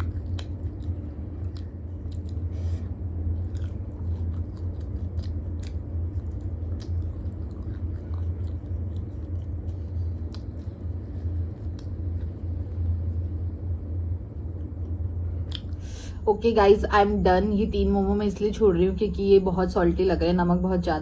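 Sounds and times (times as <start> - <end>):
wet mouth chewing clicks: 0.0 - 2.7, 3.3 - 12.4, 14.8 - 15.8
low hum: 0.0 - 21.0.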